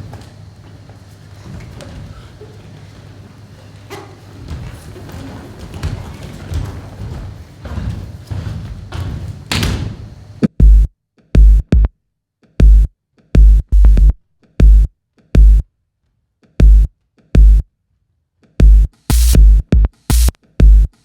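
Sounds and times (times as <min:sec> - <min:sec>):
heavy drum machine bass hits: 0:09.1 - 0:11.9, 0:12.6 - 0:15.6, 0:16.6 - 0:17.6, 0:18.6 - 0:21.0.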